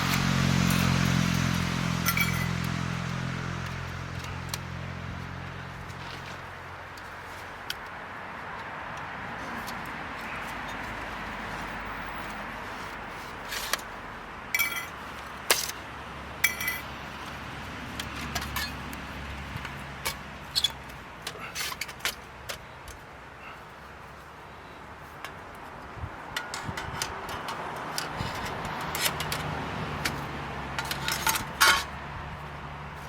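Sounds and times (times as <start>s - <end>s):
metal pieces clinking: 2.0s - 2.6s, 14.6s - 14.9s.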